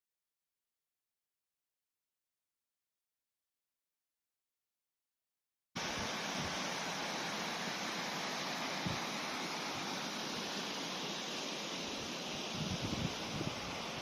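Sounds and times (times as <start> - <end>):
river water rushing: 5.8 - 14.0
wind buffets on microphone: 12.5 - 14.0.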